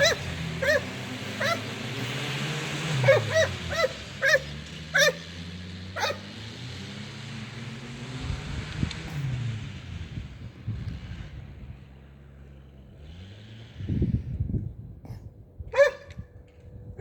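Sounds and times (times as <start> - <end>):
dog barking: 0.0 - 1.7, 3.0 - 5.3, 6.0 - 6.3, 15.7 - 16.2
snowmobile engine running: 0.0 - 14.4.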